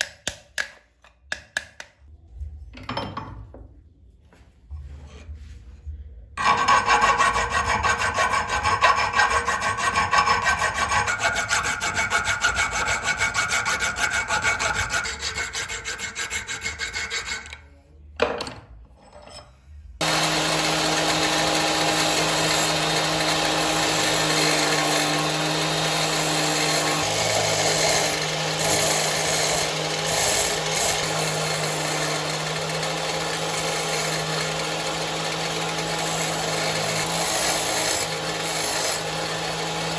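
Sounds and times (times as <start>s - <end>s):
file rasping on metal: 6.4s - 17.7s, 20.0s - 39.9s
power tool motor humming: 20.0s - 39.9s.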